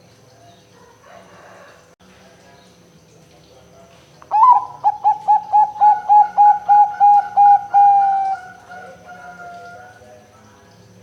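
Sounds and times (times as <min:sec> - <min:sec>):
dove cooing: 0:04.3 - 0:10.1.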